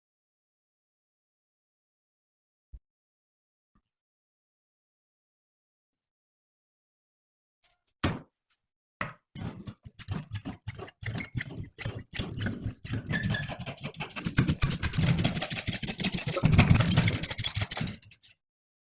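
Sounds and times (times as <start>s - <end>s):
chaff cutter clicking and rattling: 11.0s - 18.3s.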